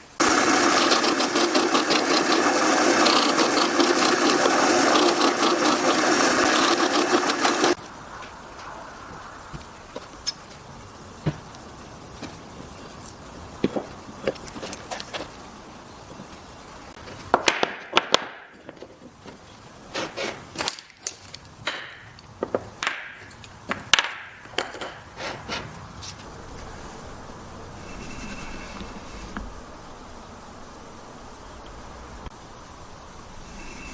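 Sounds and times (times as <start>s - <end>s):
low steady background noise: 7.7s - 33.9s
wooden pieces knocking: 20.6s - 25.1s.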